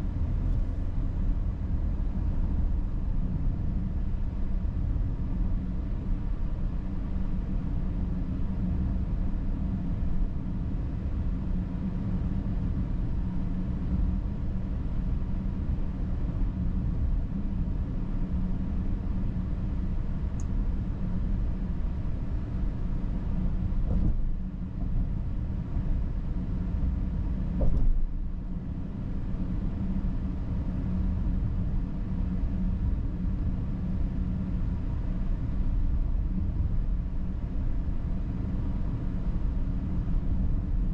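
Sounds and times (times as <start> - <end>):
engine and road rumble: 0.0 - 40.9
short thump: 23.8 - 25.0, 27.6 - 28.1
brief knock: 23.9 - 25.0, 27.6 - 28.0.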